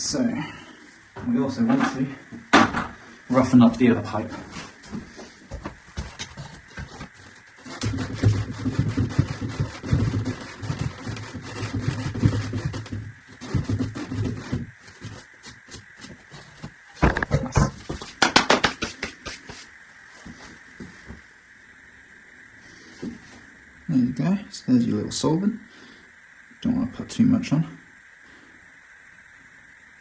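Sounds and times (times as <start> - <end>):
sandpaper rubbing plastic pipe: 6.0 - 16.8, 17.9 - 19.7
sharp clicks and knocks: 17.0 - 19.4.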